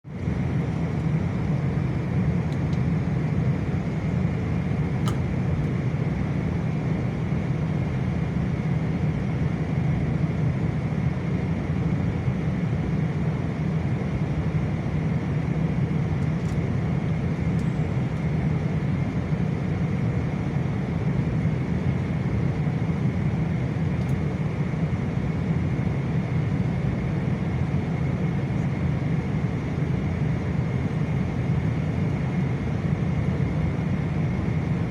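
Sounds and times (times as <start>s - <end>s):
airliner cabin engine drone: 0.1s - 34.9s.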